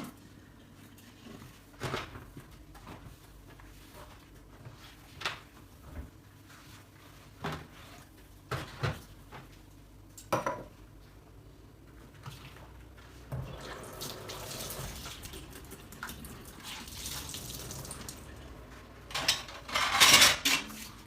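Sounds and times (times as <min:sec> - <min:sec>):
dishes and cutlery clattering: 0:19.1 - 0:21.0.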